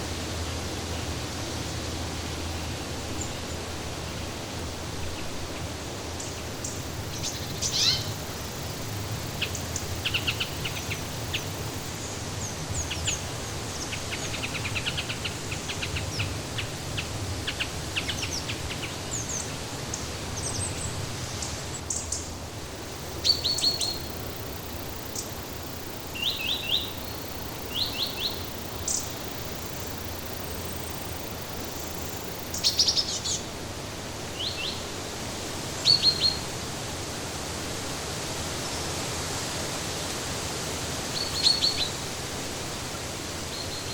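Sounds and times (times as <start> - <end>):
songbirds chirping: 0.8 - 34.9.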